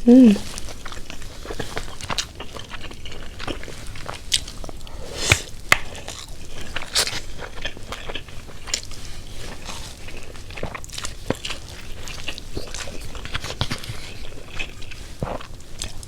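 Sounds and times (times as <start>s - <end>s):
person chewing and mouth smacking: 0.0s - 16.0s.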